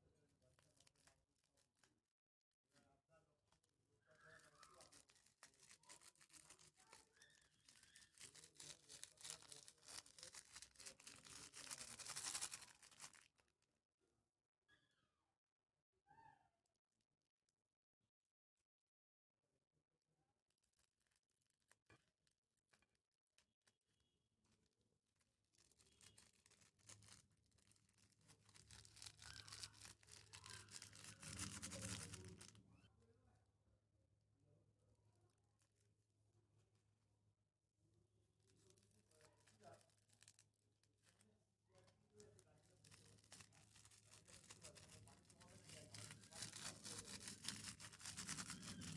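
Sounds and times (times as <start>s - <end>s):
fast crackling and popping: 4.3s - 13.4s, 25.4s - 32.6s, 42.2s - 48.9s
crunchy slime squished by hand: 4.6s - 13.2s, 25.7s - 32.5s.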